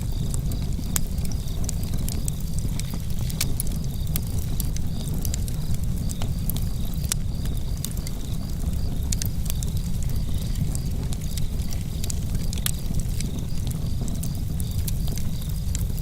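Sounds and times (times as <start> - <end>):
campfire crackling and popping: 0.0 - 16.0
crickets chirping: 0.0 - 16.0.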